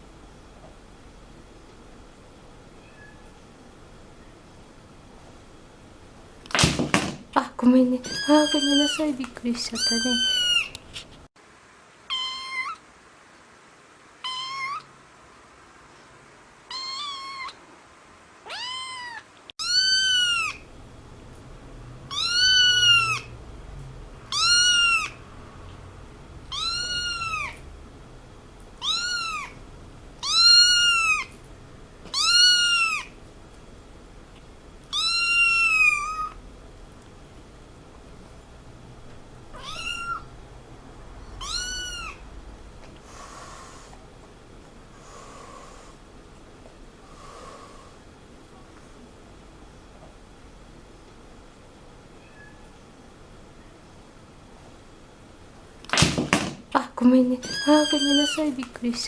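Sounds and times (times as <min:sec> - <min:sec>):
cat meowing: 0:02.8 - 0:03.4, 0:08.0 - 0:09.1, 0:09.8 - 0:10.8, 0:12.1 - 0:12.8, 0:14.2 - 0:14.9, 0:16.7 - 0:17.6, 0:18.4 - 0:20.6, 0:22.1 - 0:23.3, 0:24.3 - 0:25.2, 0:26.5 - 0:27.6, 0:28.8 - 0:29.6, 0:30.2 - 0:31.3, 0:32.1 - 0:33.2, 0:34.9 - 0:36.4, 0:39.5 - 0:40.3, 0:41.4 - 0:42.2, 0:52.2 - 0:52.8, 0:57.4 - 0:58.5.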